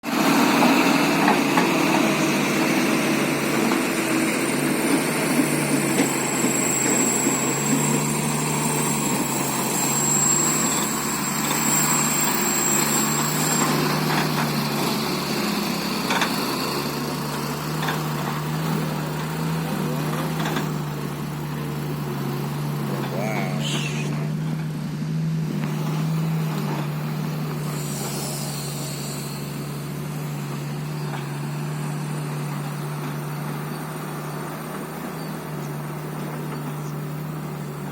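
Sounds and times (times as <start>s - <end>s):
diesel truck engine running: 0.0s - 37.9s
thin high whine: 27.5s - 30.9s.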